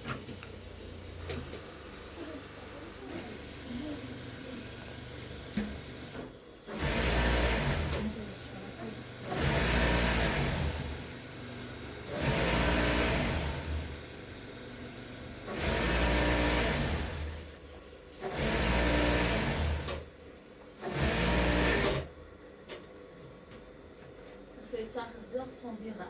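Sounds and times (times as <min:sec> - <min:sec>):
sewing machine stitching: 0:05.6 - 0:11.2, 0:12.0 - 0:14.1, 0:15.4 - 0:17.6, 0:18.2 - 0:20.1, 0:20.8 - 0:22.1.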